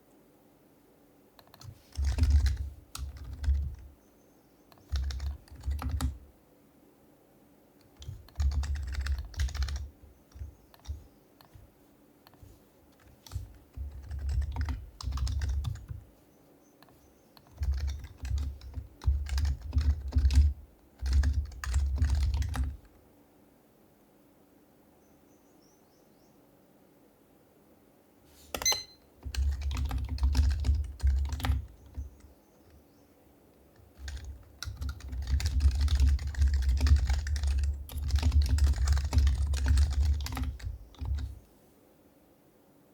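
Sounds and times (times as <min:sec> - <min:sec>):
soft keyboard typing: 0:01.4 - 0:04.0, 0:04.7 - 0:06.3, 0:07.8 - 0:16.1, 0:16.8 - 0:23.0, 0:28.5 - 0:32.8, 0:33.6 - 0:41.4.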